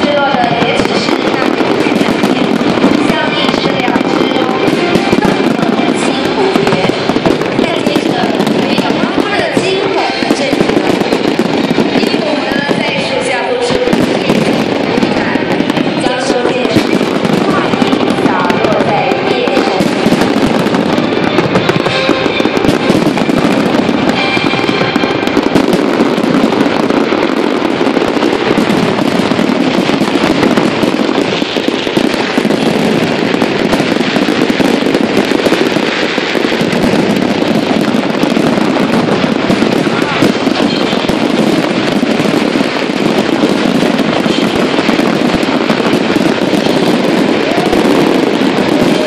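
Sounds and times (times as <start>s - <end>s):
faint voices: 0.0s - 11.2s, 11.8s - 25.4s, 38.8s - 43.1s, 44.1s - 49.0s
fireworks bangs and crackling: 0.0s - 49.0s.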